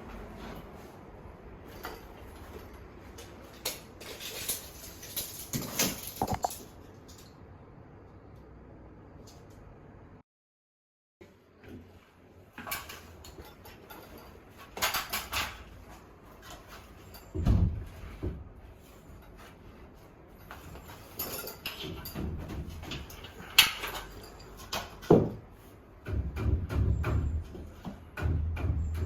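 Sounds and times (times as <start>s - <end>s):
knocks and rustles of handling tools: 1.6s - 7.4s, 11.6s - 29.0s.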